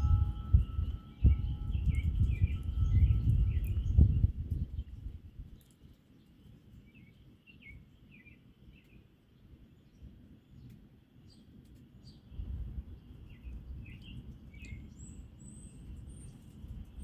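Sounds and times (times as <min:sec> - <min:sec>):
wind noise on microphone: 0:00.0 - 0:05.8, 0:12.3 - 0:17.0.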